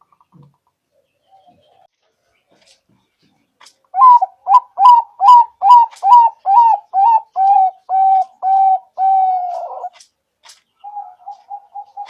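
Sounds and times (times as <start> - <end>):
dove cooing: 4.0 - 10.0, 10.8 - 12.0.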